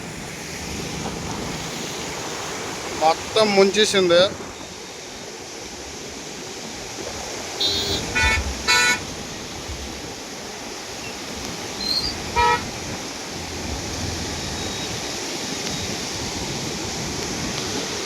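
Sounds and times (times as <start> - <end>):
rain: 0.0 - 18.0
river rushing: 0.0 - 18.0
vehicle horns honking: 7.6 - 9.0, 12.3 - 12.7.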